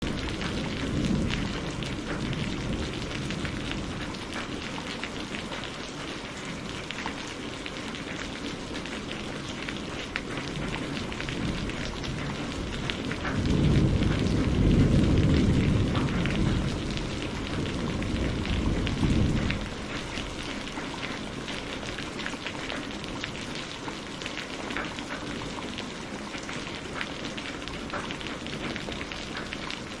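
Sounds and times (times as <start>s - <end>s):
low thunder rumble: 0.0s - 5.4s, 10.4s - 22.0s
heavy rain on a window: 0.0s - 30.0s.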